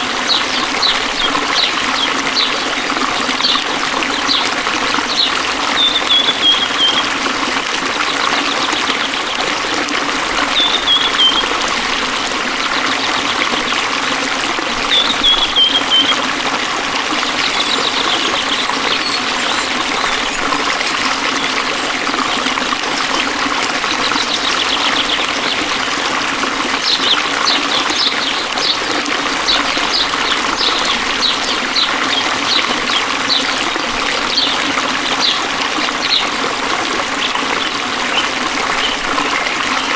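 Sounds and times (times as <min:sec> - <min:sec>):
stream flowing and trickling: 0:00.0 - 0:39.9
bird whistling and chirping: 0:05.1 - 0:07.1, 0:10.5 - 0:11.5, 0:14.9 - 0:16.2, 0:17.2 - 0:20.5.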